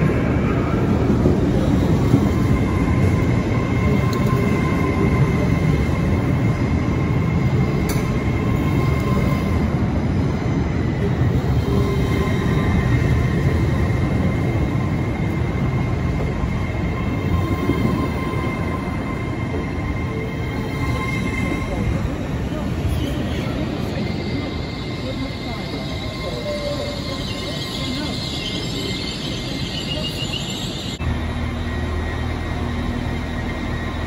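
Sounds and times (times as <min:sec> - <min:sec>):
train carriages rumbling: 0:00.0 - 0:34.0.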